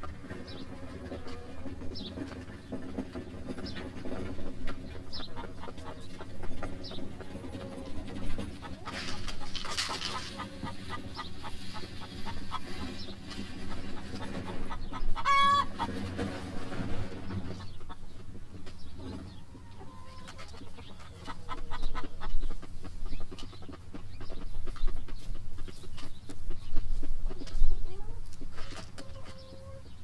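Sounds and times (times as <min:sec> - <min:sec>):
chickens clucking: 0:00.0 - 0:30.0
chicken squawk: 0:07.2 - 0:13.1, 0:13.7 - 0:16.0.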